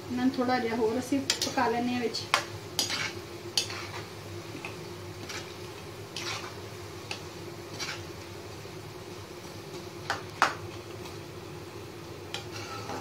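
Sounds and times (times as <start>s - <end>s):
deep-frying sizzle in oil: 0.0s - 13.0s
metal skimmer scraping a pan: 12.4s - 13.0s.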